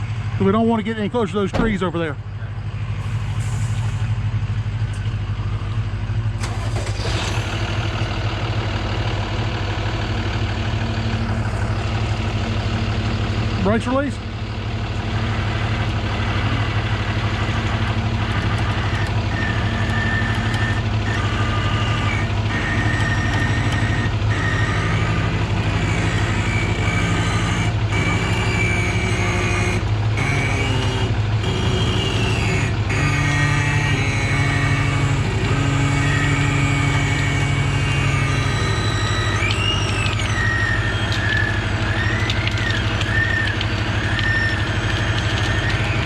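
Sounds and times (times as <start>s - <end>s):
diesel engine running: 0.0s - 46.0s
winch whining: 6.4s - 8.3s, 15.0s - 46.0s.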